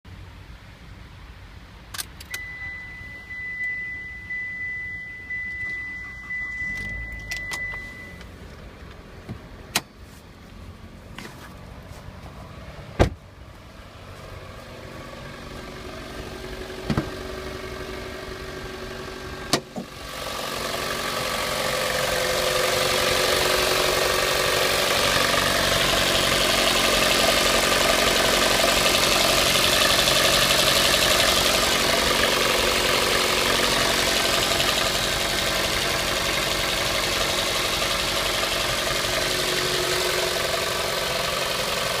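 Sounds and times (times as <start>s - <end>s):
car engine idling with knock: 8.5s - 9.9s, 14.4s - 42.0s.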